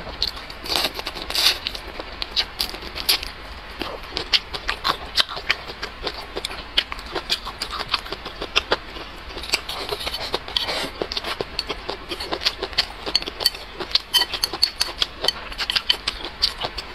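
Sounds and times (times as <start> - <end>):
wet chewing and lip smacking: 0.2 - 16.9
chopsticks pushing rice: 9.4 - 16.8.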